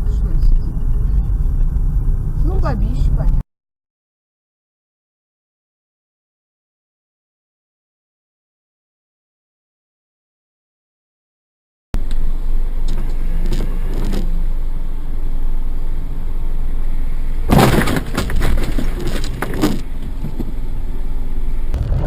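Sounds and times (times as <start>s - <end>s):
engine and road noise: 0.0s - 3.4s, 12.0s - 22.0s
loud clattering knocks: 17.5s - 20.6s.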